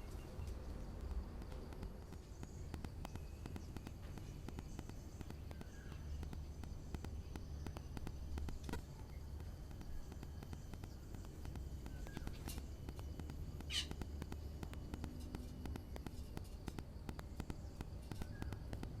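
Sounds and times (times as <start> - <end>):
low steady rumble: 0.0 - 19.0
birds pecking taps: 0.1 - 19.0
bird chirps: 2.2 - 15.1, 17.3 - 19.0.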